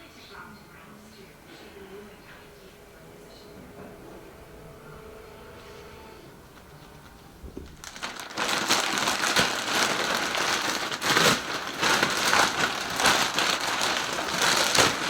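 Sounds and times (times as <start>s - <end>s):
plastic packaging crinkling: 6.5s - 15.0s.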